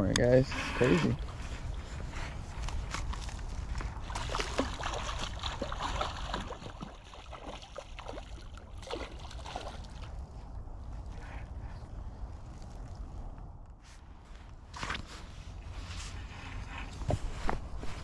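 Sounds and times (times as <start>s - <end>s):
creek water splashing: 1.2s - 10.4s
steady low rumble: 9.5s - 18.0s.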